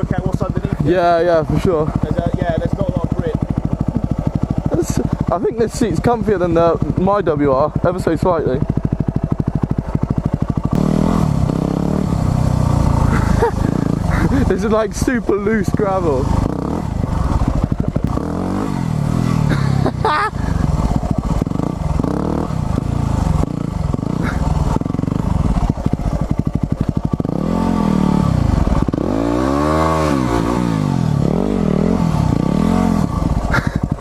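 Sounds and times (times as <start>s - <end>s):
motorbike engine revving: 0.0s - 34.0s.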